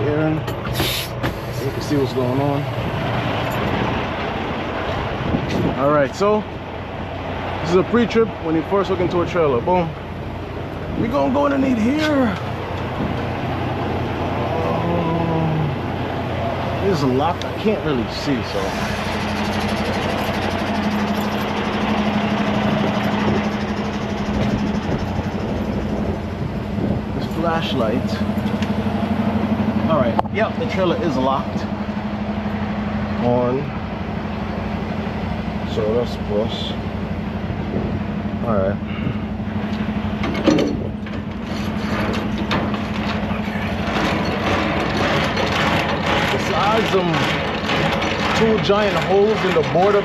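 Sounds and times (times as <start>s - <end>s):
diesel truck engine idling: 0.0s - 50.0s
metal clanks and rattles: 0.4s - 6.4s, 16.9s - 31.7s, 39.6s - 50.0s.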